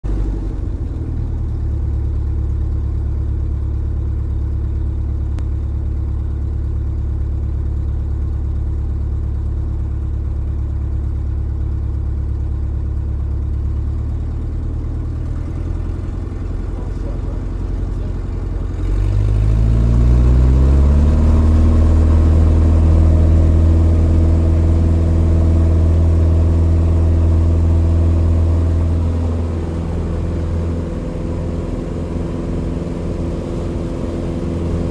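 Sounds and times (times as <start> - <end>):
airplane piston engine: 15.3 - 18.9, 21.6 - 34.9.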